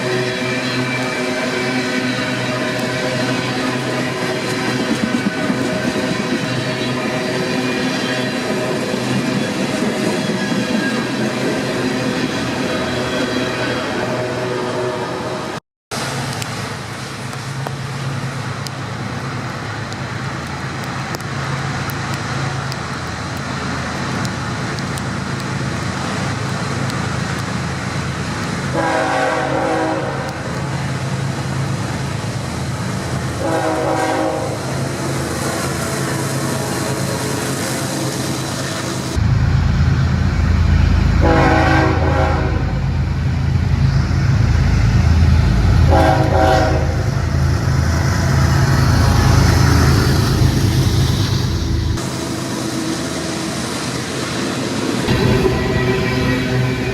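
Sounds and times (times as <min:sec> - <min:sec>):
freight train rumble: 0:00.0 - 0:56.9
rail noise: 0:00.0 - 0:56.9
locomotive air horn blasts: 0:28.7 - 0:30.4, 0:33.4 - 0:34.6, 0:41.2 - 0:42.9, 0:45.9 - 0:47.2, 0:55.1 - 0:56.9.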